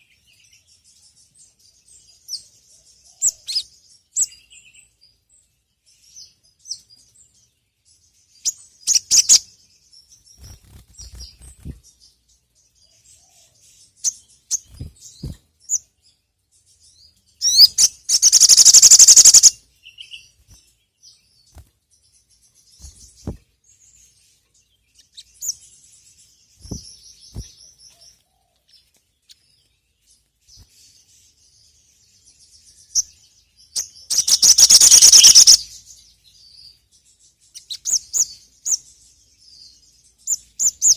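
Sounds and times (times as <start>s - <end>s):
songbird chirping: 0.0s - 40.9s
bird trills: 8.4s - 9.5s, 17.4s - 20.4s, 33.7s - 35.8s.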